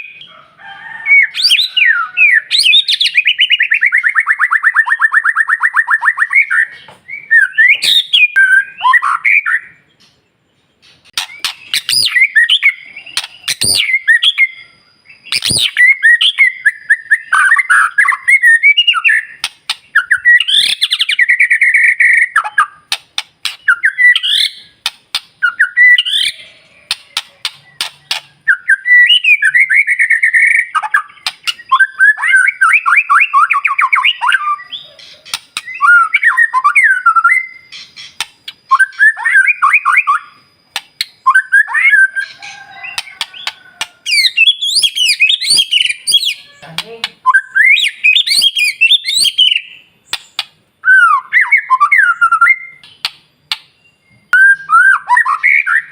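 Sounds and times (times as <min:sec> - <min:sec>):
bird singing whistled phrases: 0:01.2 - 0:09.8, 0:11.1 - 0:24.8, 0:25.4 - 0:52.9, 0:53.8 - 0:55.9
sharp bird clicks: 0:10.8 - 0:14.4, 0:15.3 - 0:16.9, 0:18.9 - 0:21.2, 0:22.3 - 0:29.7, 0:30.7 - 0:33.0, 0:35.0 - 0:41.8, 0:42.9 - 0:50.6, 0:52.7 - 0:53.8.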